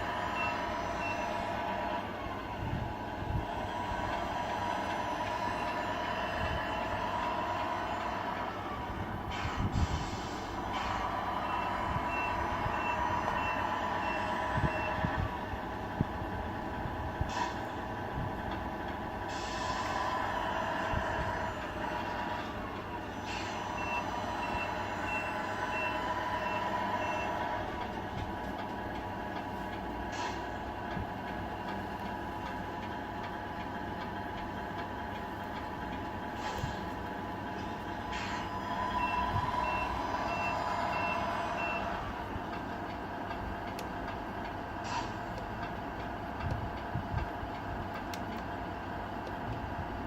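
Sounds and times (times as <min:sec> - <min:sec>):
diesel engine drone: 0:00.0 - 0:50.0
reversing beeper: 0:00.1 - 0:01.7, 0:10.2 - 0:15.2, 0:19.4 - 0:27.7, 0:38.1 - 0:42.1.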